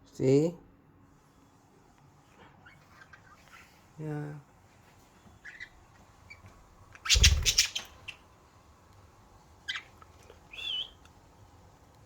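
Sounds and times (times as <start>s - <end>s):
budgie wings flapping: 7.0s - 8.0s
budgie chirps: 7.0s - 8.2s, 10.5s - 11.0s.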